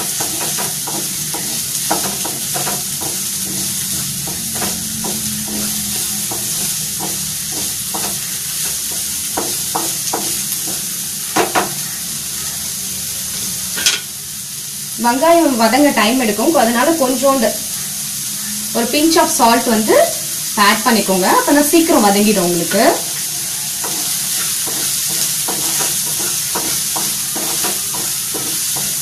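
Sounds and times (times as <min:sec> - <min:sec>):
spatula scraping and tapping pan: 0:00.0 - 0:11.9, 0:22.7 - 0:29.0
onions sizzling in hot oil: 0:00.0 - 0:29.0.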